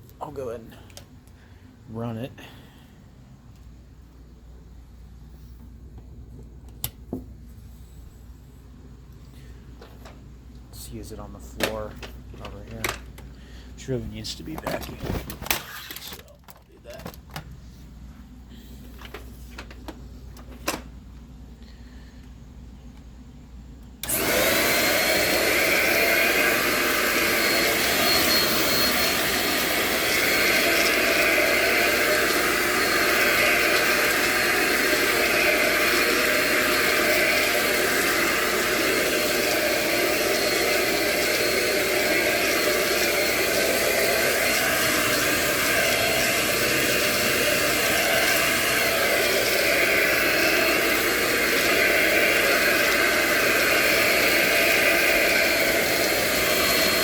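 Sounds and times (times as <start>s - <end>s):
stick vacuum running: 24.0s - 57.0s.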